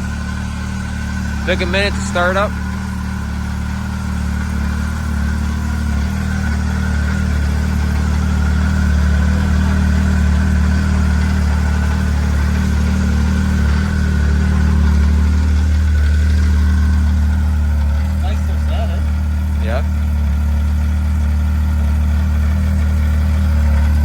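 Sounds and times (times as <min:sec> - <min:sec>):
snowmobile engine idling: 0:00.0 - 0:24.0.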